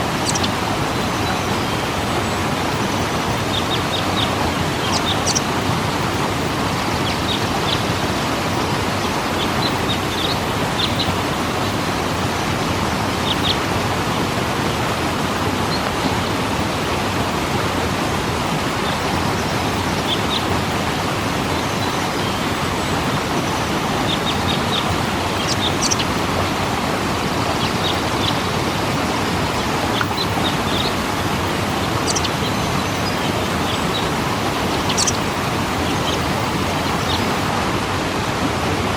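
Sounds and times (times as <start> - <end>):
waterfall rushing: 0.0 - 38.9
high bird chirps: 0.2 - 1.8, 3.4 - 5.6, 24.0 - 26.2, 27.4 - 37.4.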